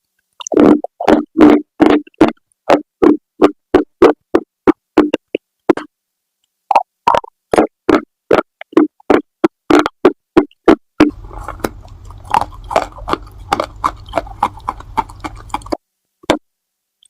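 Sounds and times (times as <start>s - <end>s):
clay pieces crunched by chewing: 11.0s - 15.8s
low hum: 11.1s - 15.8s.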